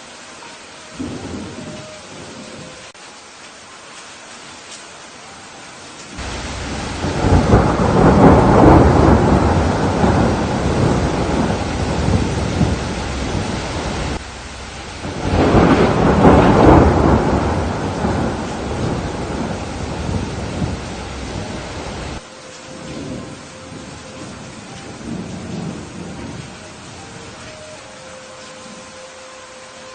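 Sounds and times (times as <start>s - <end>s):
steady rain: 0.0s - 29.9s
thunder rolling: 1.0s - 2.9s, 6.2s - 27.5s.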